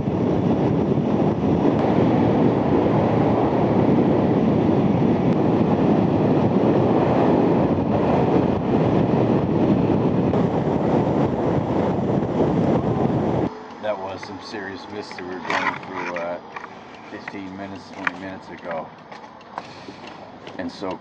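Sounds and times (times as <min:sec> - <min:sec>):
road noise: 0:00.0 - 0:21.0
wind rush on microphone: 0:00.0 - 0:21.0.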